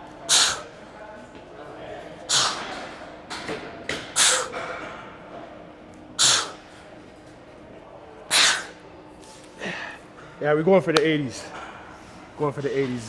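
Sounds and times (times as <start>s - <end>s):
man's hissing exhalations: 0.3s - 0.8s, 2.3s - 2.7s, 4.2s - 4.6s, 6.2s - 6.7s, 8.3s - 8.8s.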